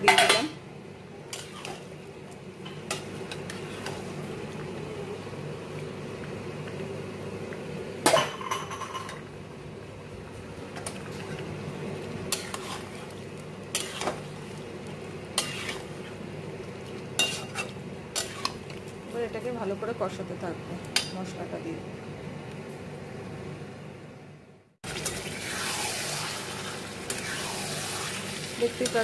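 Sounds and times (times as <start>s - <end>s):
meat sizzling in a pot: 12.1s - 19.0s, 24.8s - 29.0s
metal spoon scraping a pot: 15.4s - 15.9s.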